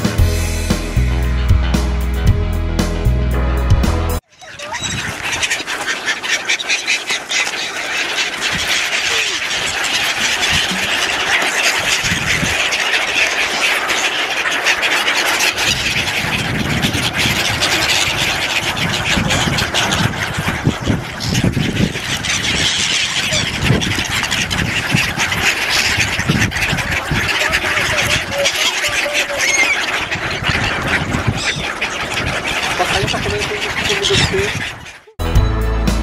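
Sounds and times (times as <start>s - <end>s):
music: 0.0s - 4.2s, 35.2s - 36.0s
flock of birds chattering: 4.2s - 35.2s.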